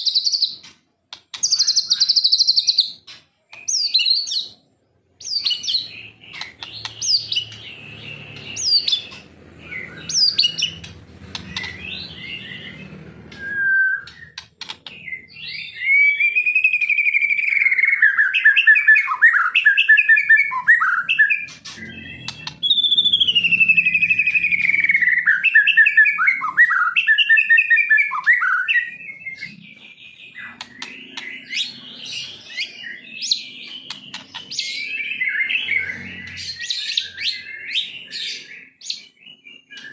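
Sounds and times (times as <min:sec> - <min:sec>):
songbird chirps and warbling: 0:00.0 - 0:39.9.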